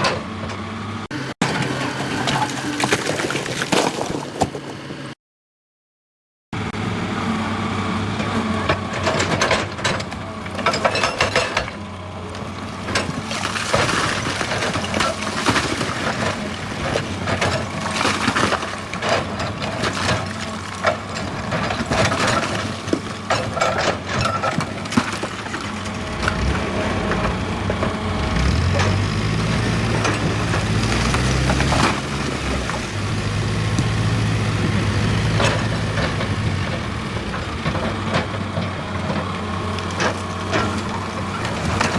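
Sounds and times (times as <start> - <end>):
excavator engine running: 0.0 - 5.2, 6.6 - 41.9
bucket scraping rock and earth: 1.4 - 5.1, 12.4 - 38.3, 39.6 - 41.9.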